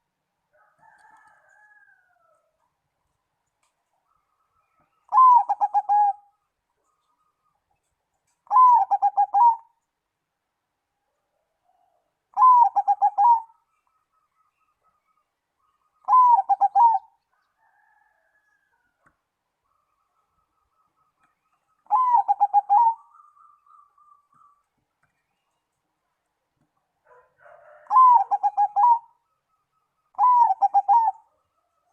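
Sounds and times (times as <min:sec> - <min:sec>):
dove cooing song: 0:04.8 - 0:07.4, 0:08.4 - 0:09.8, 0:11.6 - 0:18.9, 0:20.0 - 0:24.7, 0:27.0 - 0:31.9.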